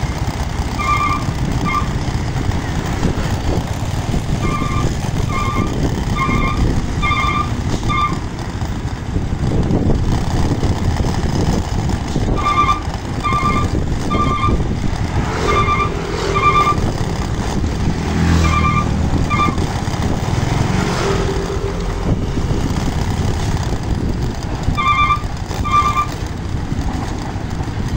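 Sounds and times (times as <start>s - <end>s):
truck engines running: 0.0s - 27.9s
reversing alarm beeps: 0.8s - 1.2s, 6.3s - 8.1s, 15.4s - 16.8s, 24.8s - 26.1s.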